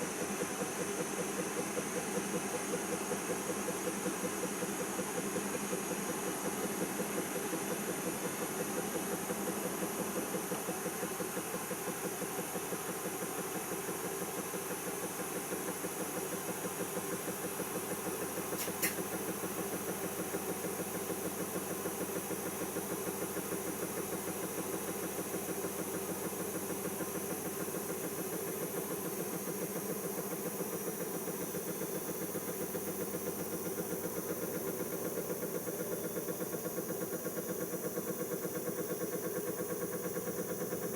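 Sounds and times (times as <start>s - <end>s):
short click: 18.6s - 19.0s.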